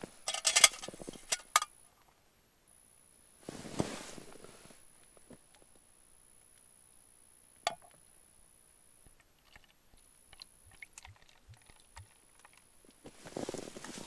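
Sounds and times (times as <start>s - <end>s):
faint clicks and handling noises: 0.2s - 2.2s.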